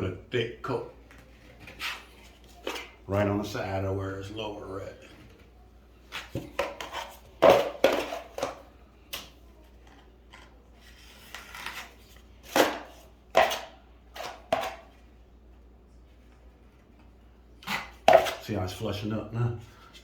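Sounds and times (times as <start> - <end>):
drywall knife scraping compound: 6.1 - 8.5, 10.9 - 14.9, 17.6 - 18.5.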